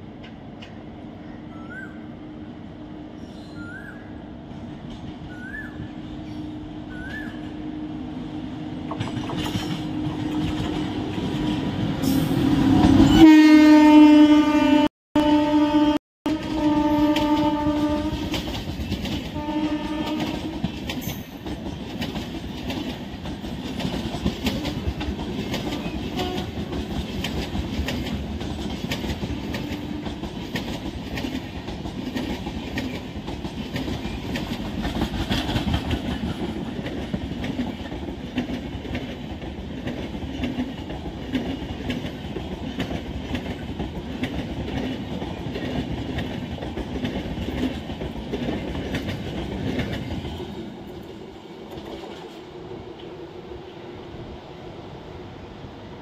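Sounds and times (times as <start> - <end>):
train wheels clattering over rails: 8.8 - 13.2, 16.4 - 52.5.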